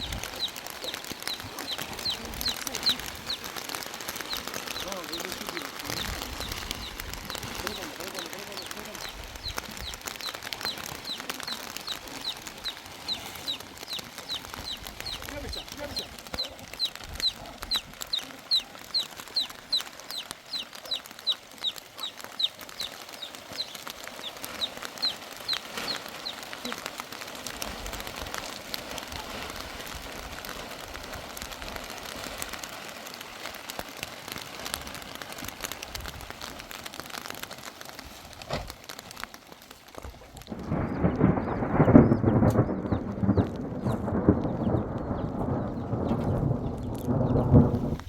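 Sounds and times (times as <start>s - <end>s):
bird chirping: 4.1s - 26.4s, 40.6s - 47.7s.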